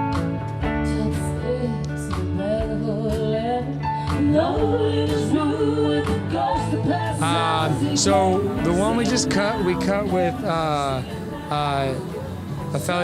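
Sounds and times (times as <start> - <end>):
person singing: 2.4 - 13.0
band music: 4.2 - 13.0.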